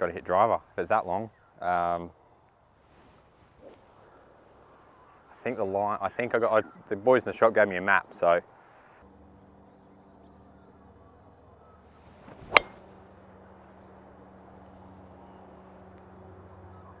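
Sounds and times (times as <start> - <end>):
swish of golf swing: 12.2 - 12.8
golf club striking ball: 12.3 - 12.8.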